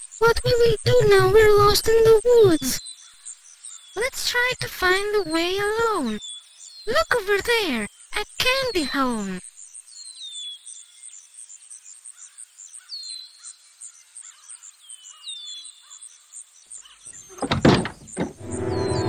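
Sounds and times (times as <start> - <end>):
insects pulsing: 0.0 - 12.8
loud cluster of knocks: 17.3 - 19.0
bird whistling falling notes: 18.0 - 19.0
music with sustained chords: 18.4 - 19.0.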